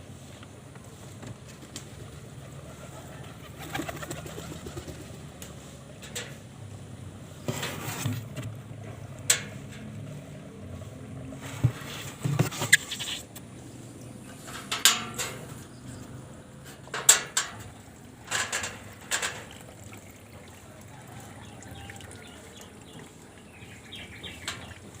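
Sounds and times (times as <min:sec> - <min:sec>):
pigeons cooing: 0:02.0 - 0:05.3.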